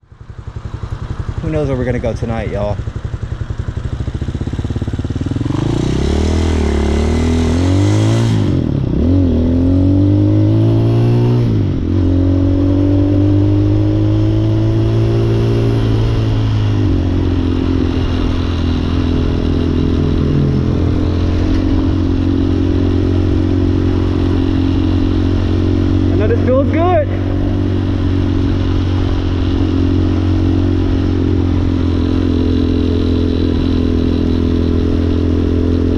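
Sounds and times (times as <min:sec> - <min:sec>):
dirt bike engine revving: 0:04.1 - 0:35.9.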